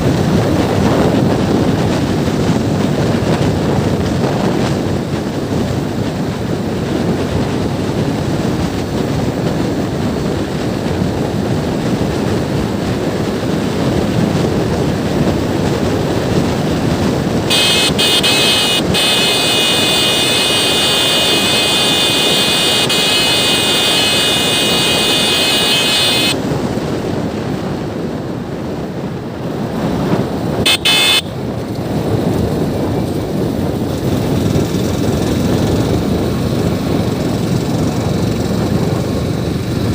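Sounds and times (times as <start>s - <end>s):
motorbike engine and road noise: 0.0s - 39.9s
wind rushing over microphone: 0.0s - 39.9s
high-pitched tone: 17.5s - 26.4s, 30.7s - 31.4s.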